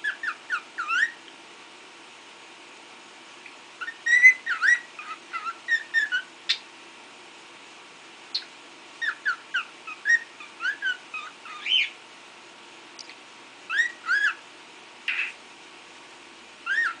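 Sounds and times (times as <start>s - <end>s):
cockatiel whistling: 0.0s - 1.2s, 3.8s - 6.6s, 8.4s - 12.0s, 13.7s - 14.4s, 16.6s - 17.0s.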